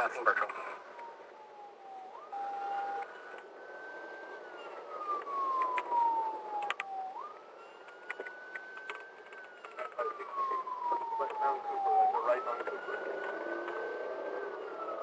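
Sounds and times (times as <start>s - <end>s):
police siren wailing: 0.0s - 15.0s.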